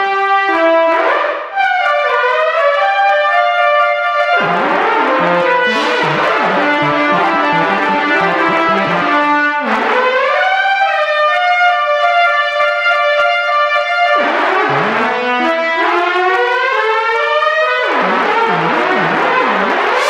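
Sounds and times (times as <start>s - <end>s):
synthesized siren imitation: 4.1s - 11.1s, 13.8s - 20.0s.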